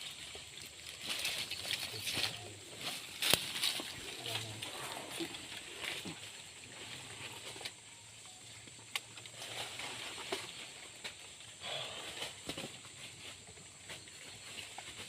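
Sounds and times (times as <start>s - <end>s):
rustling and snapping twigs: 0.0s - 6.2s.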